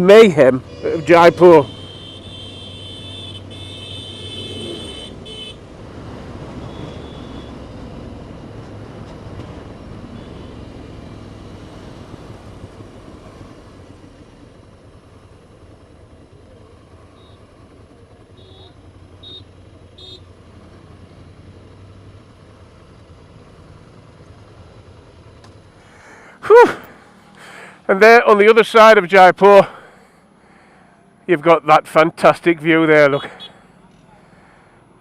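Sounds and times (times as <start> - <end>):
motorcycle engine rumble: 0.2 - 27.9
vehicle horn honking: 0.7 - 5.6, 6.6 - 7.6, 10.2 - 10.6, 18.3 - 20.2.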